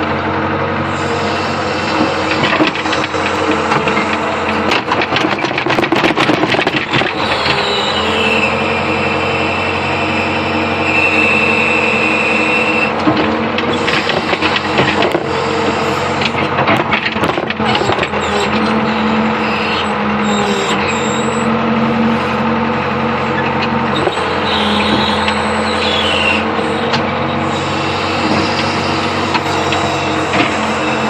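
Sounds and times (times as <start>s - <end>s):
excavator engine droning: 0.0s - 31.0s.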